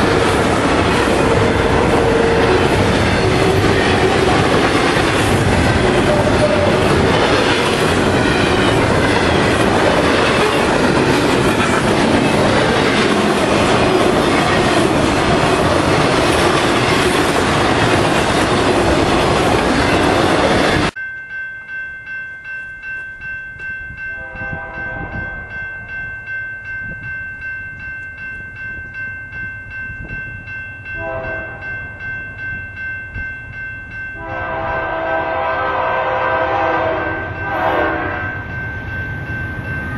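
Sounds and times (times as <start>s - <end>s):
distant train horn: 0.0s - 4.2s, 5.6s - 7.8s, 24.2s - 25.4s, 31.0s - 31.7s, 34.2s - 38.5s
train passing at speed: 0.0s - 21.0s, 23.9s - 39.9s
crossing warning bell ringing: 0.0s - 39.9s.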